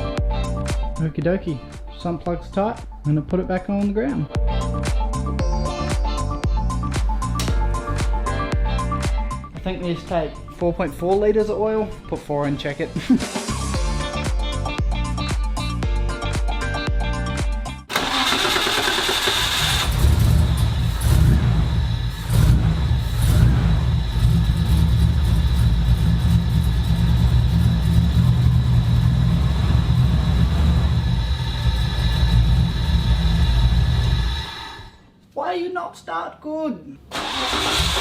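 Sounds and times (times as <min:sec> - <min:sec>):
background music: 0:00.0 - 0:18.3
car engine cranking and idling: 0:17.9 - 0:35.0, 0:37.1 - 0:38.0
engine throttle blips: 0:17.9 - 0:35.0.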